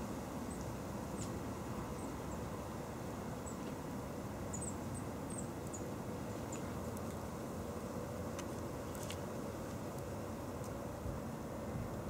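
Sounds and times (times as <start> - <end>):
low outdoor rumble and hiss: 0.0 - 12.0
small birds chirping: 4.5 - 7.1.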